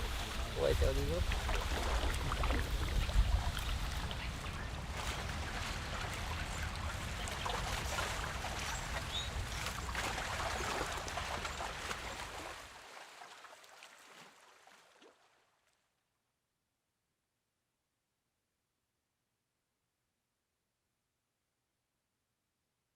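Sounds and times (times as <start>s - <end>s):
wind rumble on microphone: 0.0s - 12.2s
lapping water splashes: 0.0s - 15.5s.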